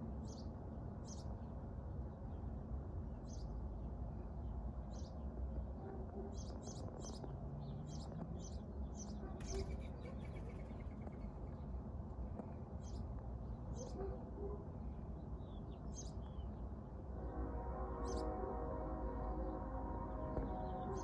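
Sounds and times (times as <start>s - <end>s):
birds chirping: 6.2s - 11.7s.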